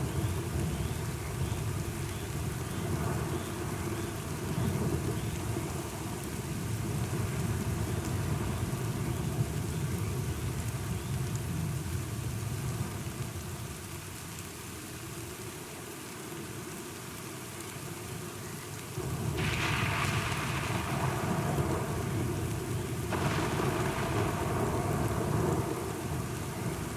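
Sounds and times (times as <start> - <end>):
steady rain: 0.0 - 26.9
rolling thunder rumble: 19.0 - 26.9.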